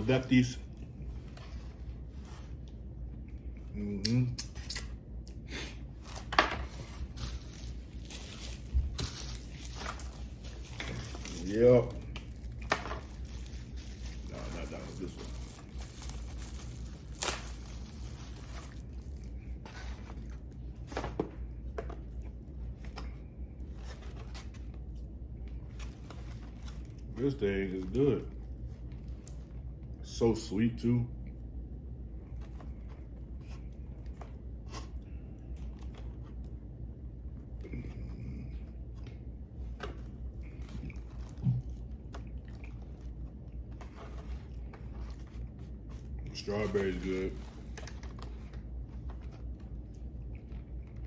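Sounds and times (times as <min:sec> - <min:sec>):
steady low hum: 0:00.0 - 0:51.0
person chewing juicy food: 0:40.4 - 0:43.6
chewing: 0:41.6 - 0:43.2.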